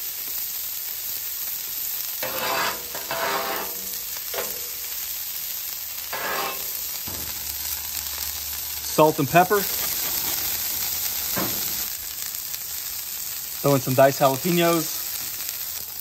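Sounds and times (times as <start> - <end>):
meat and onions sizzling on griddle: 0.0 - 16.0.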